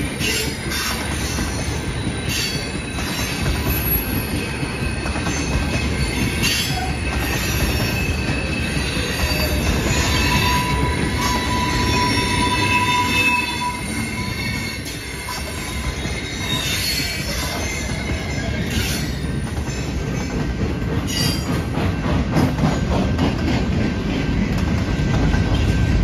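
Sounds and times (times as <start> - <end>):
train wheels rumbling: 0.0 - 26.0
high wheel squeals: 0.2 - 19.8.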